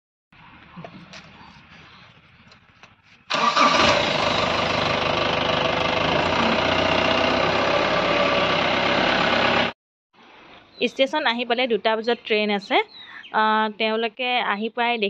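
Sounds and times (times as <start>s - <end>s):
car engine starting and running: 3.3s - 9.8s.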